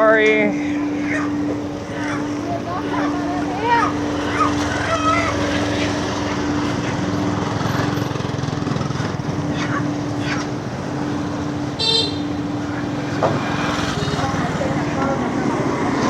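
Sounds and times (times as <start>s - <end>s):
vehicle running hum: 0.0s - 16.0s.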